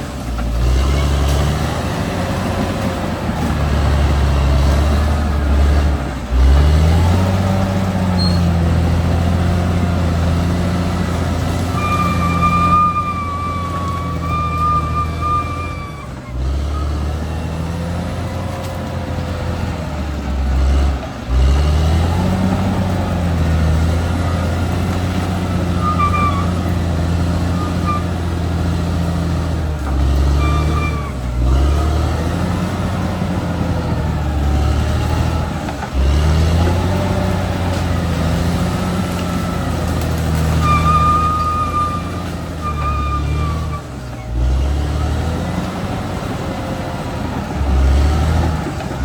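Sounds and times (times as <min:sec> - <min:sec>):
bulldozer diesel engine running: 0:00.0 - 0:49.0
short high squeaks: 0:08.2 - 0:08.6, 0:11.7 - 0:16.9, 0:25.7 - 0:26.6, 0:30.2 - 0:31.2, 0:40.4 - 0:44.3.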